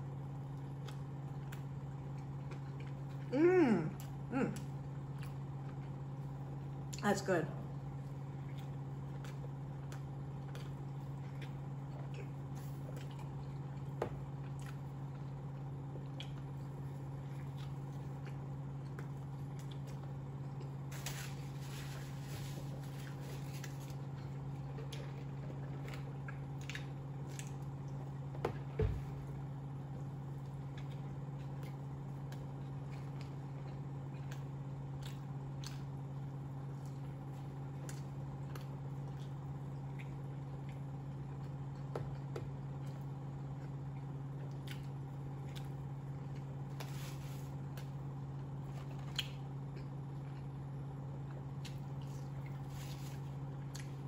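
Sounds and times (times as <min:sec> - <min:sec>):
steady low hum: 0:00.0 - 0:54.0
wet chewing clicks and smacks: 0:08.5 - 0:20.8, 0:30.0 - 0:36.2, 0:37.8 - 0:46.6.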